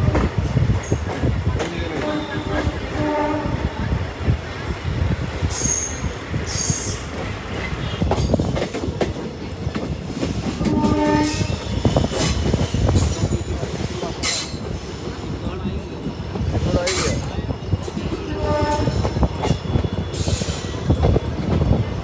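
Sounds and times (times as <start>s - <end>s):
passenger train rumbling: 0.0s - 22.0s
train horn note: 2.0s - 3.9s, 10.6s - 12.0s, 18.2s - 19.2s.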